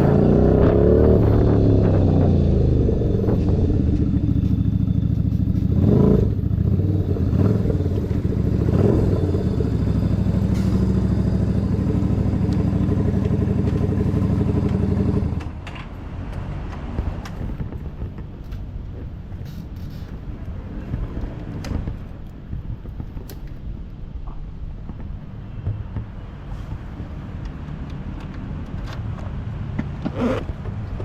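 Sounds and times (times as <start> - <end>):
motorcycle engine running: 0.0 - 15.5.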